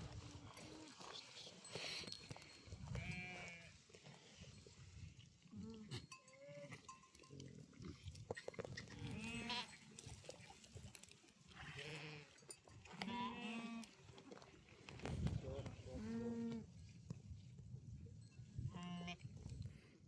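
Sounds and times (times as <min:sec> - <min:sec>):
goats or sheep bleating: 0:02.9 - 0:03.8, 0:09.0 - 0:09.7, 0:12.9 - 0:13.9.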